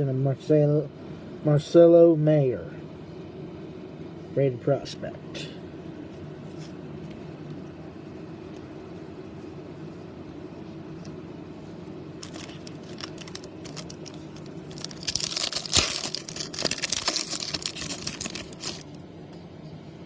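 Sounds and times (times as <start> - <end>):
sharp crack of foil: 12.2 - 18.9
foil wrapper tearing and crinkling: 12.2 - 19.0.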